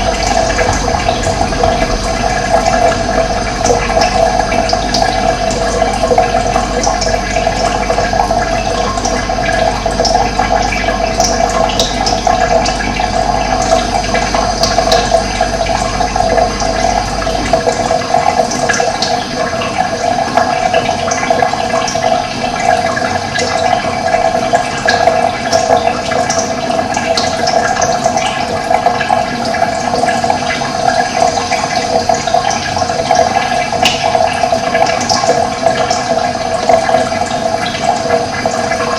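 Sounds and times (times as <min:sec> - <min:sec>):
low rumble: 0:00.0 - 0:19.3
running water rushing: 0:00.0 - 0:38.9.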